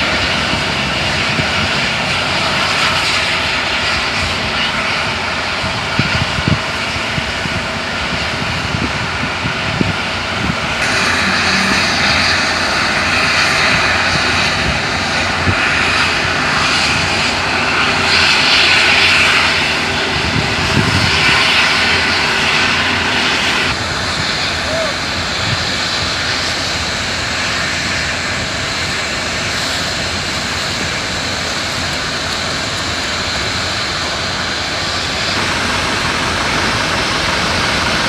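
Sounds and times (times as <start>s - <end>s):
rushing noise: 0.0s - 38.0s
diesel truck engine running: 7.2s - 24.3s, 28.4s - 38.0s.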